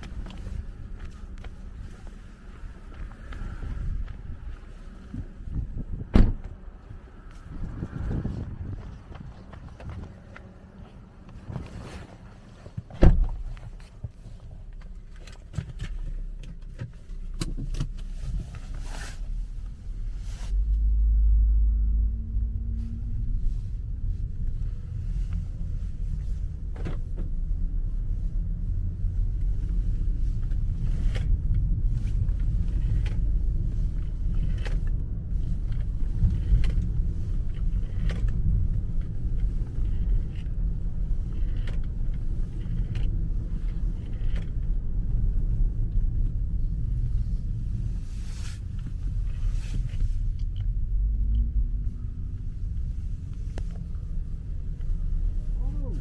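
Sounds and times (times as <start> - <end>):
road and tyre rumble: 0.0 - 56.0
car engine note rising: 20.3 - 25.8.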